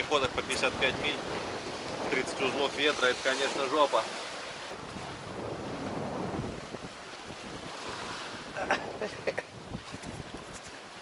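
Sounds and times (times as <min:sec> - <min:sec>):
water rushing past hull: 0:00.0 - 0:11.0
wind buffeting microphone: 0:00.0 - 0:11.0.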